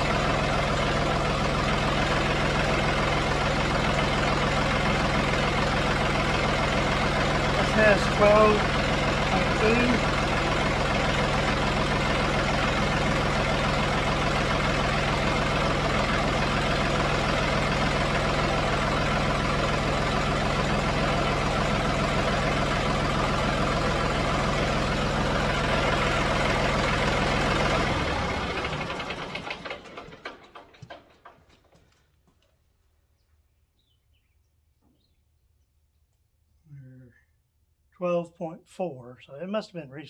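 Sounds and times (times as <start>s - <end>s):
tractor diesel engine idling: 0.0s - 31.8s
engine running down: 0.0s - 32.4s.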